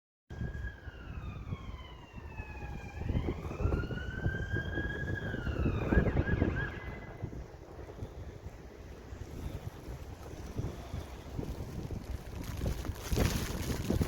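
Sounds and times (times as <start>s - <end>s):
siren wailing: 0.3s - 7.5s
wind buffeting microphone: 0.3s - 14.0s.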